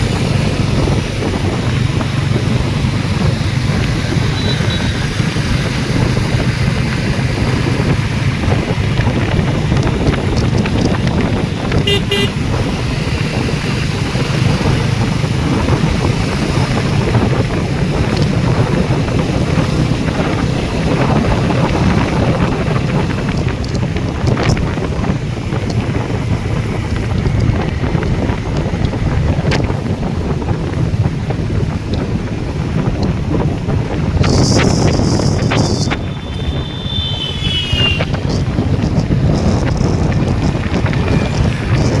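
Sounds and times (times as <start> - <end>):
motorcycle engine hum: 0.0 - 42.0
road noise: 0.0 - 42.0
wind buffeting microphone: 0.0 - 42.0
vehicle horn honking: 4.2 - 5.1, 11.8 - 12.5, 35.6 - 38.4.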